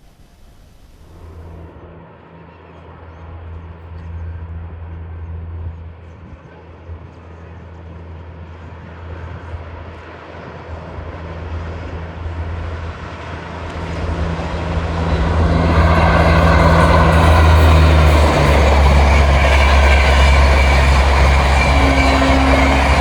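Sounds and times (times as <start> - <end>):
train locomotive drone: 0.0 - 23.0
train rushing: 8.4 - 23.0.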